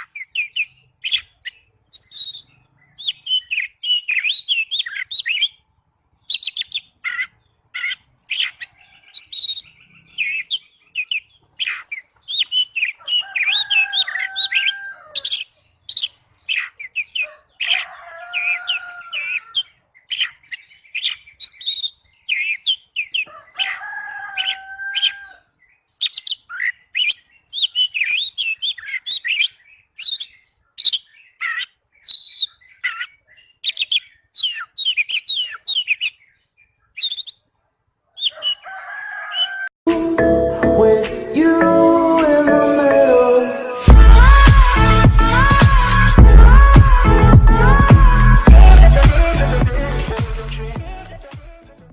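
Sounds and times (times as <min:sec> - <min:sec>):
magpie-robin singing chirps and whistles: 0:00.0 - 0:05.6, 0:06.2 - 0:17.2, 0:20.1 - 0:23.3, 0:26.0 - 0:37.4.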